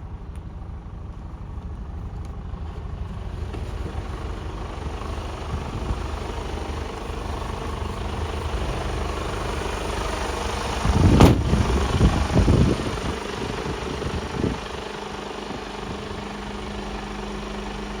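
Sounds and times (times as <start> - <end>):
truck diesel engine idling: 0.0 - 18.0.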